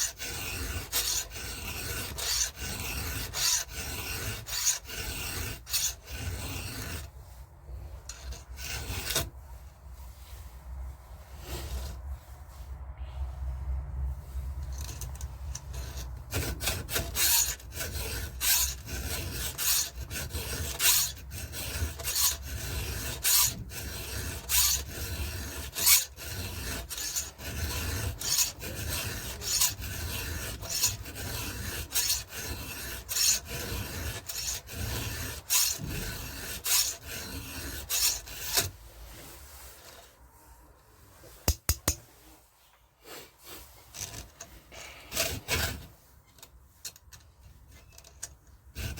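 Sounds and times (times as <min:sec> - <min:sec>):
file rasping on chainsaw chain: 0:00.0 - 0:07.1, 0:08.0 - 0:09.3, 0:14.7 - 0:38.8, 0:45.1 - 0:45.9, 0:47.9 - 0:48.9.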